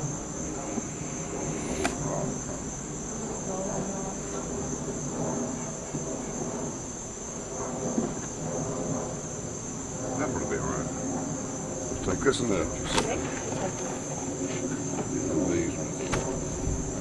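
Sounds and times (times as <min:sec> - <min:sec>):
bees buzzing: 0:00.0 - 0:07.3, 0:09.2 - 0:17.0
high-pitched insect trill: 0:00.0 - 0:17.0
sharp click: 0:01.6 - 0:02.1.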